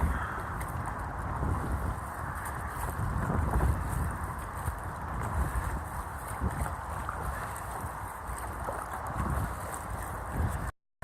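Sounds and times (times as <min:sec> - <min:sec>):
wind buffeting microphone: 0:00.0 - 0:10.7.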